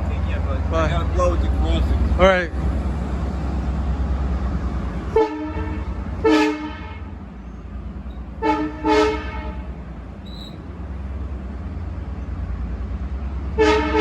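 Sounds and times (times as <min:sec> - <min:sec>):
steady low rumble: 0:00.0 - 0:13.6
train horn chord: 0:05.0 - 0:07.3, 0:08.4 - 0:09.7, 0:13.6 - 0:14.0.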